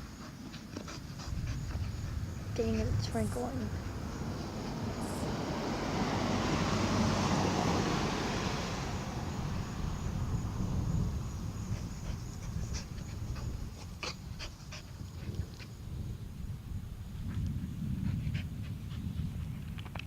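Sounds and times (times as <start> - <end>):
dog panting: 0.0 - 5.6, 8.4 - 15.8, 17.6 - 19.8.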